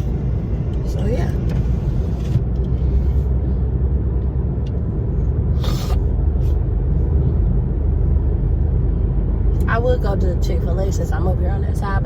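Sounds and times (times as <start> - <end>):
car engine rumble: 0.0 - 12.0
road noise: 0.0 - 12.0.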